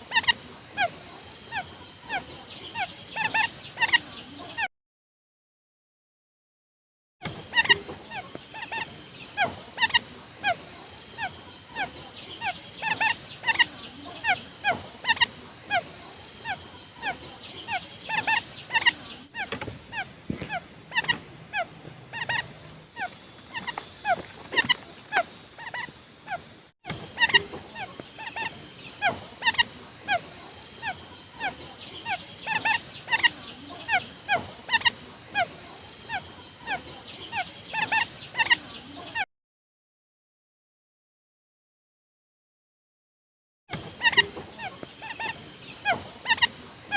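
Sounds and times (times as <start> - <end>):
quail calling: 0.0 - 4.7, 7.2 - 39.2, 43.7 - 46.9
steady high hiss: 7.8 - 38.2.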